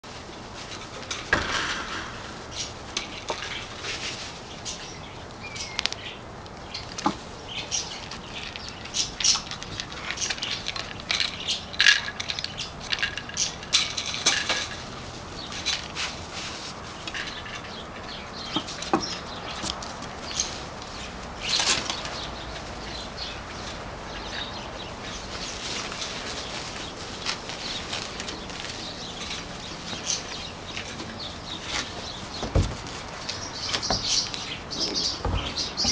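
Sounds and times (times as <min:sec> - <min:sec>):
shade cloth rustling and rattling: 0:00.0 - 0:35.9
puppy claws scrabbling: 0:05.7 - 0:14.8.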